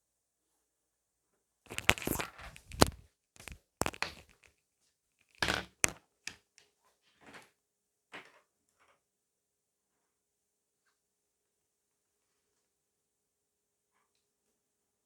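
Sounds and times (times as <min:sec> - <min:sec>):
crackly chewing: 0:01.7 - 0:04.5.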